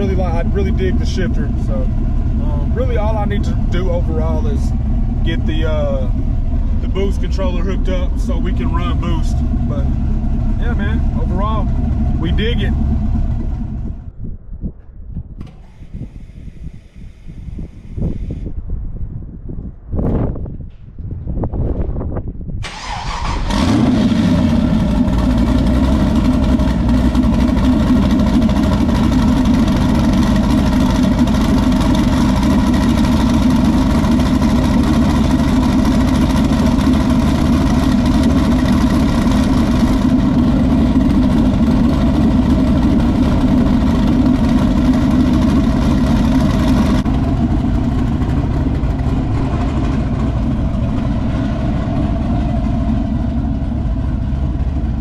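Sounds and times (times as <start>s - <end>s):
car engine starting and idling: 0.0s - 14.2s, 15.2s - 18.5s, 22.6s - 55.0s.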